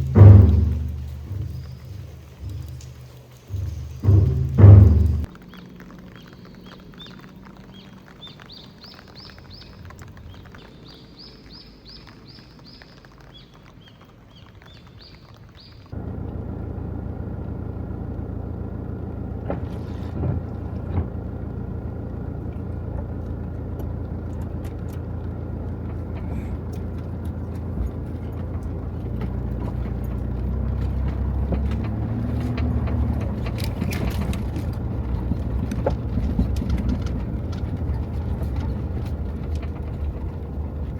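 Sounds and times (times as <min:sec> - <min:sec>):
vehicle engine humming: 0:00.0 - 0:14.7, 0:15.4 - 0:40.9
birds chirping: 0:00.0 - 0:16.1, 0:17.3 - 0:40.9.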